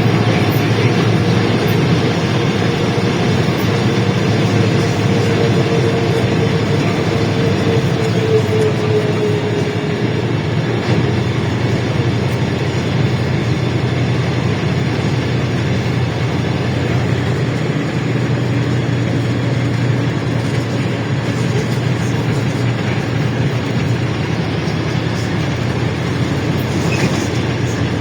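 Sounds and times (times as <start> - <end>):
bus engine humming: 0.0 - 28.0
road noise: 0.0 - 28.0.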